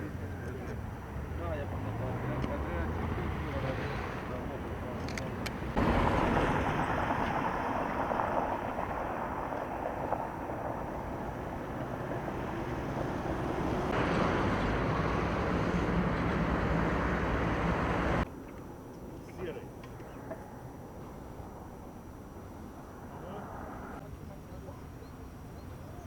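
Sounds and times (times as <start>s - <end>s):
low engine hum: 0.0s - 18.3s
outdoor vehicle noise: 0.0s - 26.0s.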